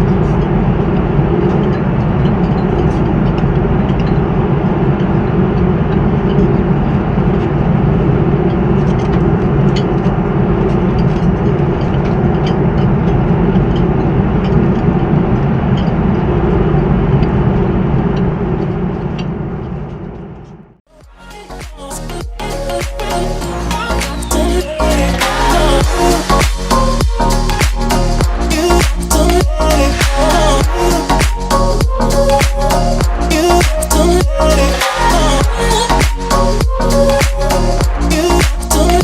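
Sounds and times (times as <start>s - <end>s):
airliner cabin engine rumble: 0.0s - 20.8s.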